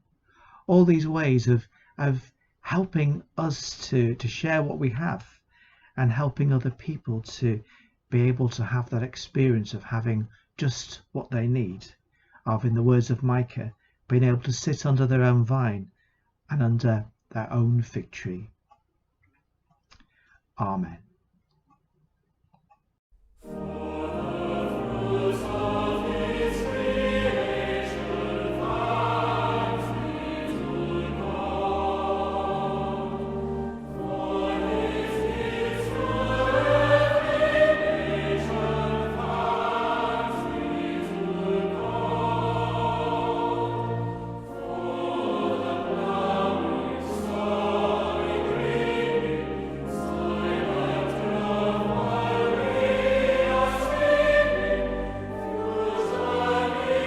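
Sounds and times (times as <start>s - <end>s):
choir singing a hymn: 23.4s - 57.0s.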